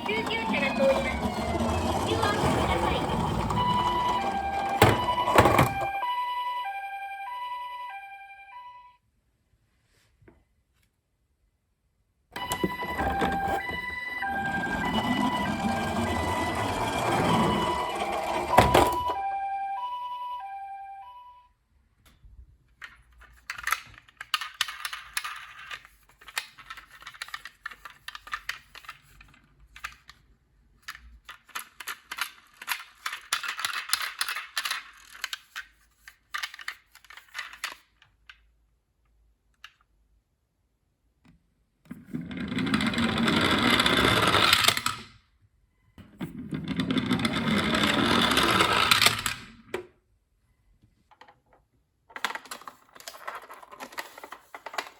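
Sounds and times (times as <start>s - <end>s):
plastic toy cars clicking: 0.0s - 6.0s, 22.1s - 40.2s, 41.9s - 45.2s, 46.0s - 50.0s, 51.0s - 54.9s
toy cars rolling down slope: 0.0s - 6.0s, 12.4s - 19.3s, 22.8s - 38.4s, 41.9s - 45.2s, 46.2s - 49.8s, 52.1s - 54.9s
toy ambulance siren: 0.0s - 9.0s, 12.4s - 21.5s.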